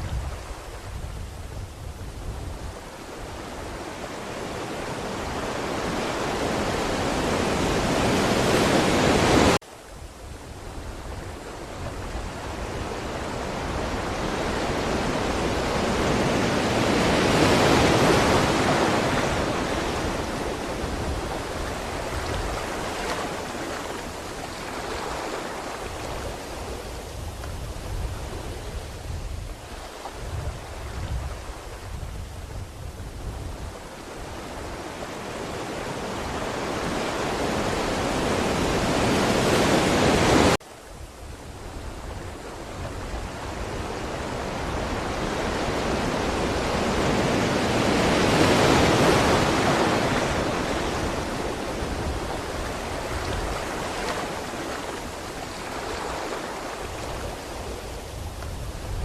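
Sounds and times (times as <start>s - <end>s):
ocean waves on shore: 0.0s - 59.0s.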